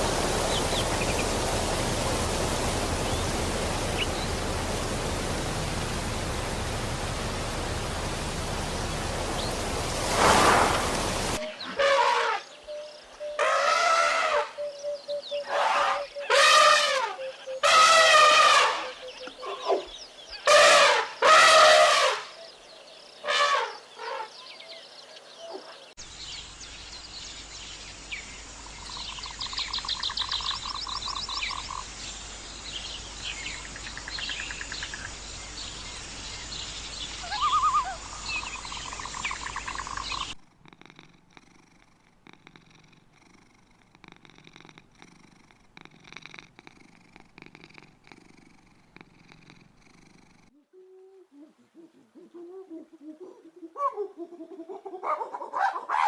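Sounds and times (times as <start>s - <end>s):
outdoor background: 0.0s - 56.0s
birdsong with trills: 11.4s - 21.6s, 23.7s - 31.9s, 32.7s - 40.4s
loud animal calls: 37.2s - 38.3s.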